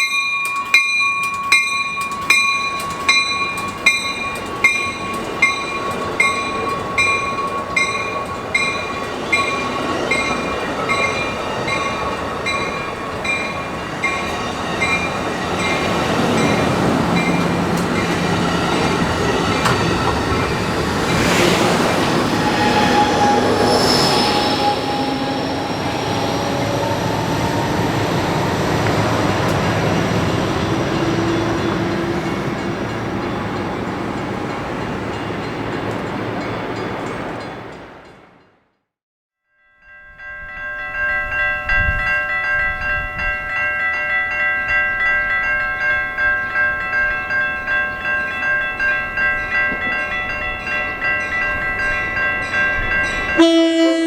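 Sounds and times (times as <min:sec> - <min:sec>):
train wheels squealing: 0:00.0 - 0:34.1
railroad crossing bell dinging: 0:00.0 - 0:38.5, 0:39.5 - 0:54.0
passing train rumble: 0:00.0 - 0:38.7, 0:40.2 - 0:54.0.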